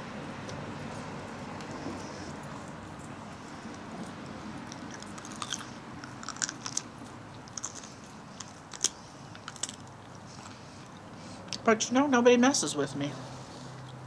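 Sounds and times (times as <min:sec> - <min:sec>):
crunching raw carrot: 0:00.4 - 0:11.6.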